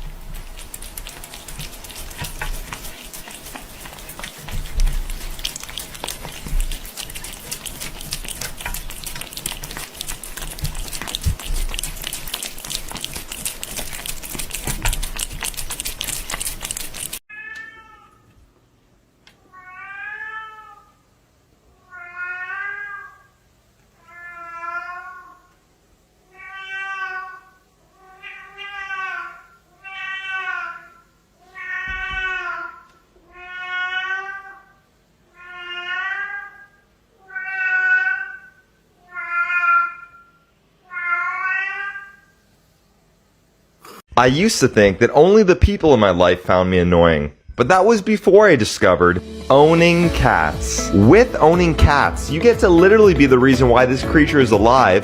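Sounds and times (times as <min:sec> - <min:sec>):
cat meowing: 0:17.3 - 0:18.3, 0:19.4 - 0:21.0, 0:21.8 - 0:23.3, 0:24.0 - 0:25.5, 0:26.3 - 0:42.3.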